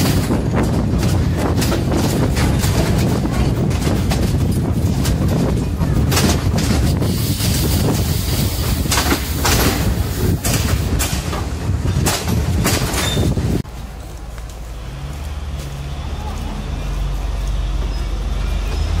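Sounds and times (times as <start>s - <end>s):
train wheels rumbling on track: 0.0s - 19.0s
wheels clacking over rail joints: 0.0s - 19.0s.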